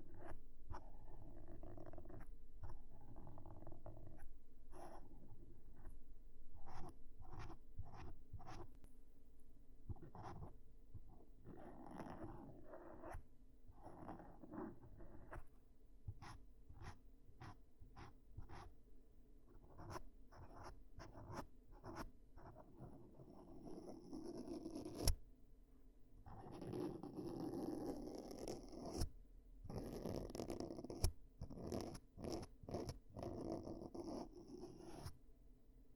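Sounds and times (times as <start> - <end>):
scratchy rubbing: 0.1 - 5.9.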